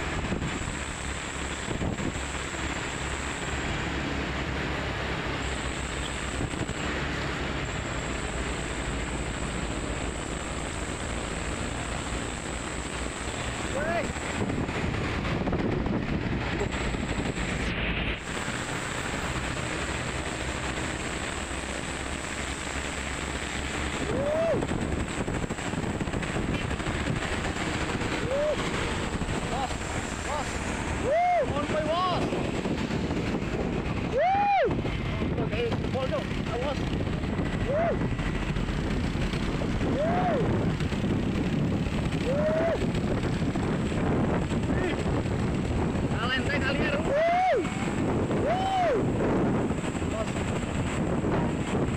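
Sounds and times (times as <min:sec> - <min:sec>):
trucks on highway: 0:00.0 - 0:51.9
wind on microphone: 0:00.0 - 0:51.9.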